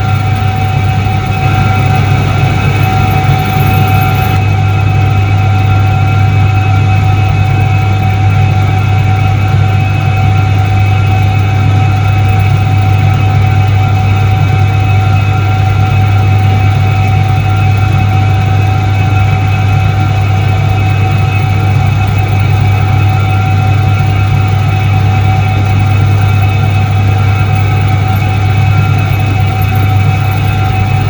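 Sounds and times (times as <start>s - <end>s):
steady higher tones: 0.0s - 5.4s
washing machine motor hum: 0.0s - 31.0s.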